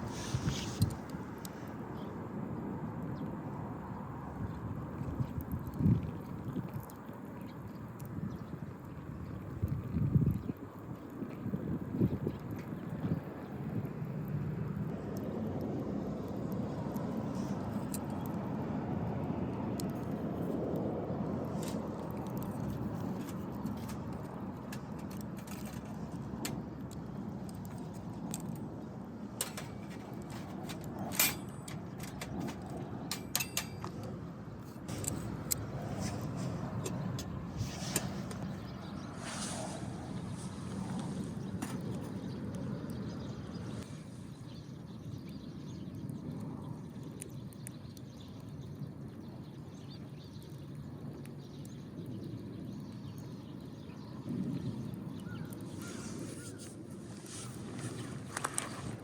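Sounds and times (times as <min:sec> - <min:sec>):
passing road traffic rumble: 0:11.8 - 0:45.4, 0:54.3 - 0:59.0
birds chirping faintly: 0:21.4 - 0:59.0.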